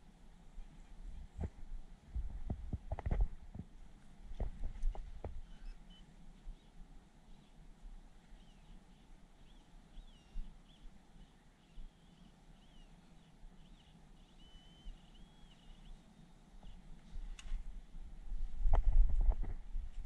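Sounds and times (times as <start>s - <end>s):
birdsong whistled notes: 5.4s - 7.6s, 8.3s - 16.9s.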